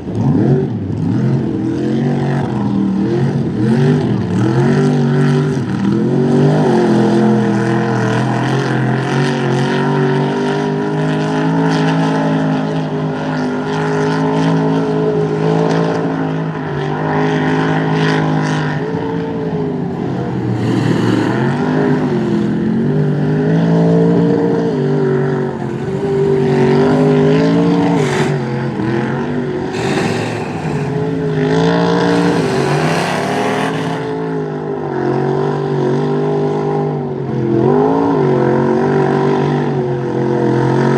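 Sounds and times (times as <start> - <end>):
truck engine revving: 20.1 - 36.0
hissing bursts: 29.7 - 31.3.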